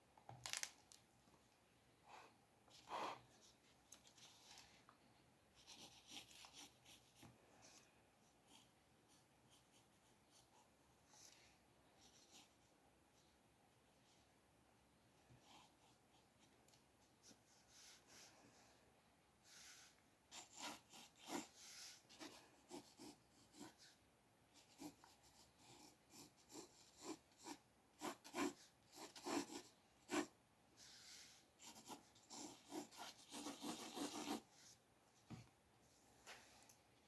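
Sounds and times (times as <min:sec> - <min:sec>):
pencil sketching on paper: 0:05.6 - 0:07.3, 0:17.2 - 0:18.7, 0:19.4 - 0:24.0, 0:24.6 - 0:34.8.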